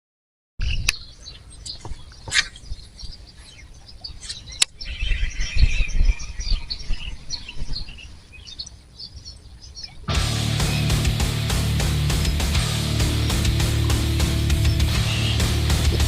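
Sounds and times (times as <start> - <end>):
small birds chirping: 0.6 - 16.0
wind rumble on microphone: 4.8 - 8.2.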